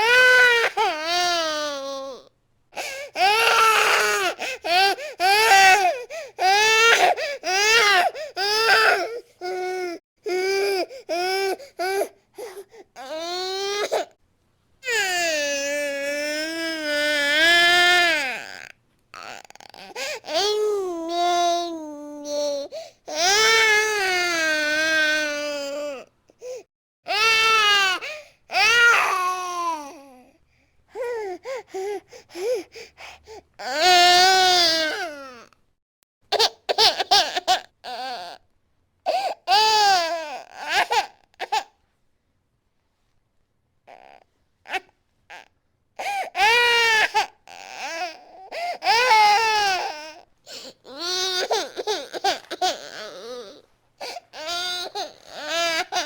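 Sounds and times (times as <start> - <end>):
infant crying: 0.0 - 14.1, 14.8 - 30.3, 30.9 - 35.5, 36.4 - 38.4, 39.1 - 41.7, 43.9 - 56.0
infant catching breath: 31.0 - 33.5.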